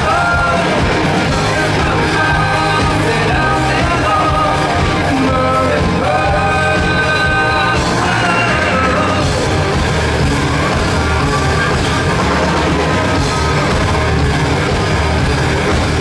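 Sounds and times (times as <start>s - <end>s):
man singing lead vocal: 0.0s - 9.6s
pop-rock band playing live: 0.0s - 16.0s.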